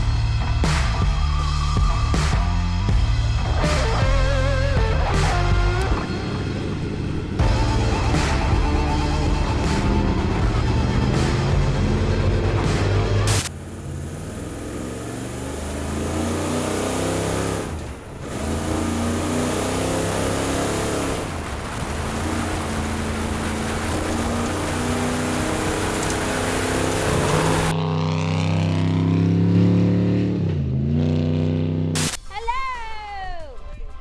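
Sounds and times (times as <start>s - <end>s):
race vehicle engine revving: 3.6s - 32.2s.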